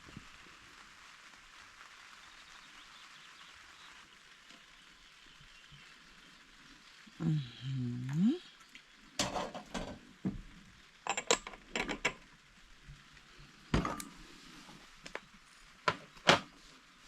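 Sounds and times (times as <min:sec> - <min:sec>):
light rain falling: 0:00.0 - 0:17.0.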